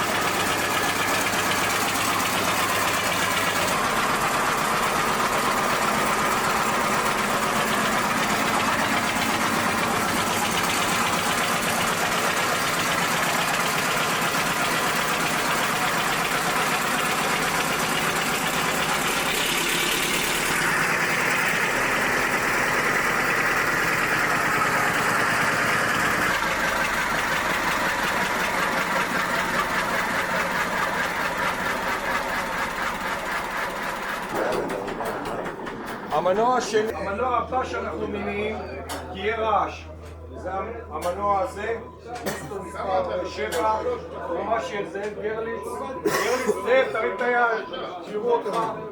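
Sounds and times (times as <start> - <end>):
stationary engine knocking: 0.0 - 36.9.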